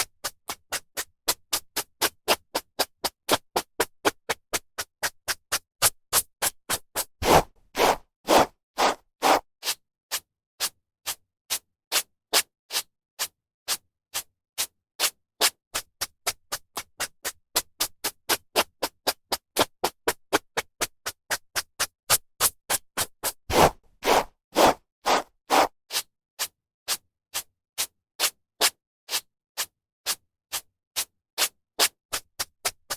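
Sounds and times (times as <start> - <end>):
hairbrush stroking through hair: 7.2 - 9.4, 23.5 - 25.7.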